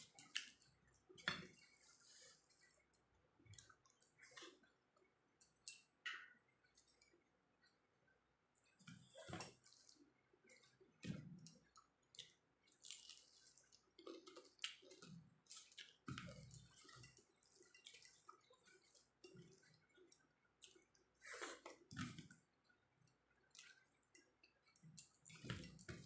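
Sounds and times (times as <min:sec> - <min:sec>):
person chewing food: 0:08.6 - 0:26.0.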